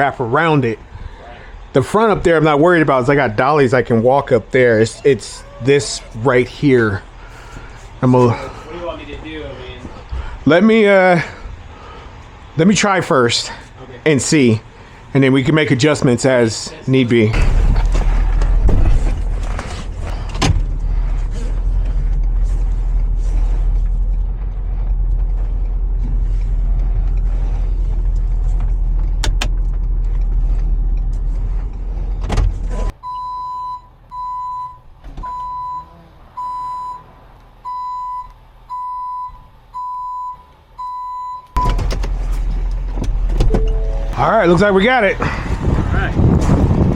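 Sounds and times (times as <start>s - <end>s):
truck engine rumbling: 0.0s - 33.1s, 33.8s - 46.9s
reversing alarm beeping: 33.0s - 41.8s, 43.4s - 44.2s.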